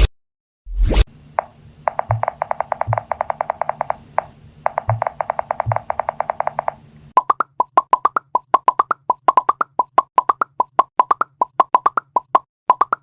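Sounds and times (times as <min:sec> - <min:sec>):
rapid pitched pings: 0:01.3 - 0:07.1.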